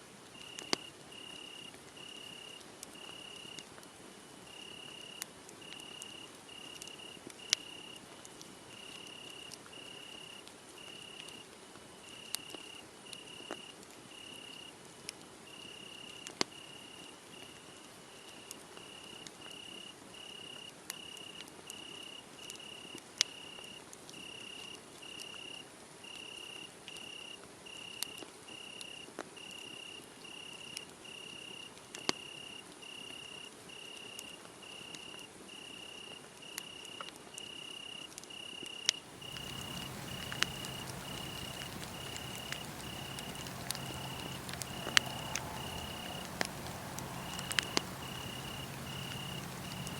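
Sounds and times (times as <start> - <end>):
crickets chirping: 37.4 - 49.9
wood fire crackling and popping: 39.0 - 49.9.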